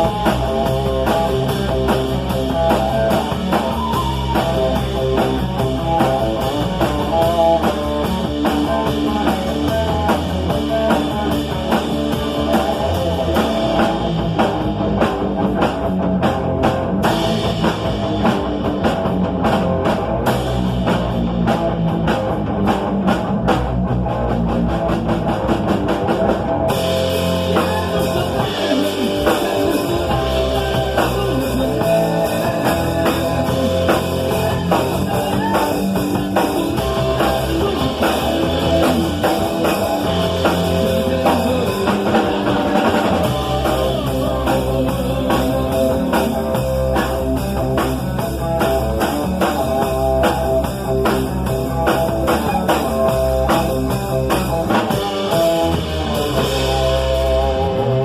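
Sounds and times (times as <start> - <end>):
drum kit: 0.0 - 58.0
electric guitar: 0.0 - 58.0.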